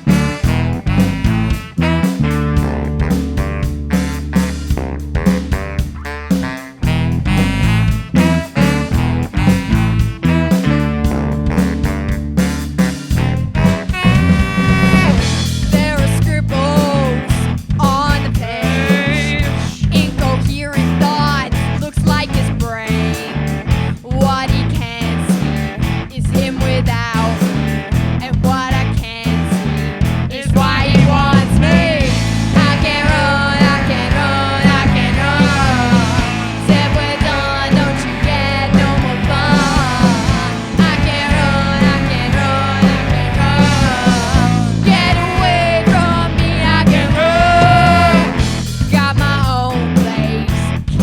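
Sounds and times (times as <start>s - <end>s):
saxophones: 0.0s - 16.0s, 31.2s - 48.6s
bass guitar: 0.0s - 51.0s
drums: 0.0s - 51.0s
electric guitar: 0.0s - 51.0s.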